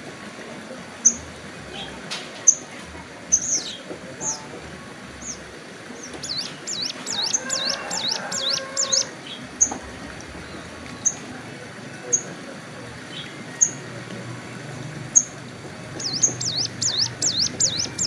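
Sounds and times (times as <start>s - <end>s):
songbird chirping and singing: 5.2s - 9.8s, 15.1s - 18.0s.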